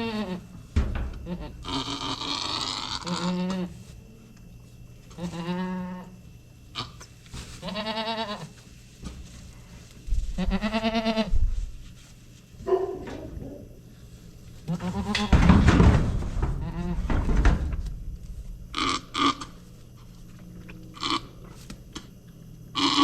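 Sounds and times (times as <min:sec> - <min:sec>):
goat bleating: 0:00.0 - 0:00.5, 0:01.2 - 0:03.7, 0:05.1 - 0:06.1, 0:07.6 - 0:08.5, 0:10.4 - 0:11.3, 0:14.7 - 0:15.3, 0:20.9 - 0:21.3, 0:22.8 - 0:23.0
low thumps: 0:15.3 - 0:18.8.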